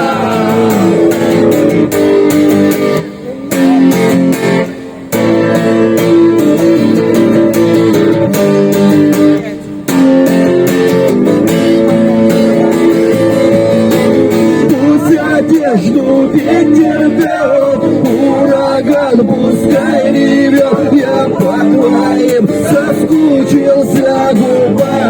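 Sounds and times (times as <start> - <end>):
person singing: 0.0 - 1.7, 14.4 - 25.0
guitar strummed: 0.0 - 25.0.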